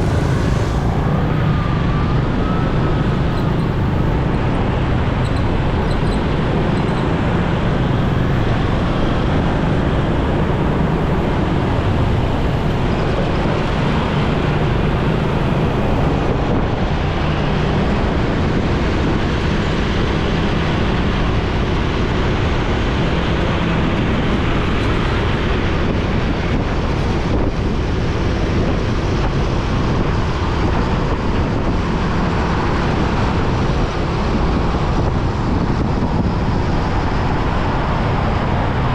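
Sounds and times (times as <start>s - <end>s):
motorcycle engine: 0.0s - 16.2s
road traffic: 0.0s - 38.9s
wind rushing over microphone: 0.0s - 38.9s.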